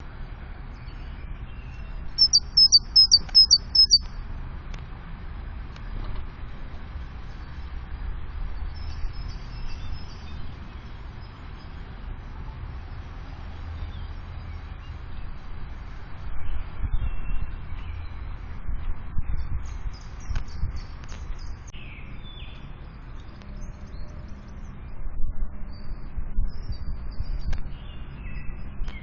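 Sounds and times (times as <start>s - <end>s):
low background rumble: 0.0s - 29.0s
faint high twittering: 2.2s - 4.1s
bird song high clipped notes: 2.2s - 4.2s.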